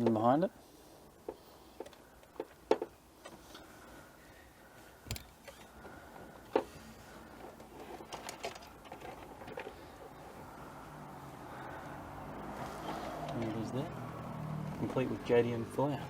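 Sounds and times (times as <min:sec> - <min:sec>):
hand tools clicking and knocking: 0:05.1 - 0:05.4.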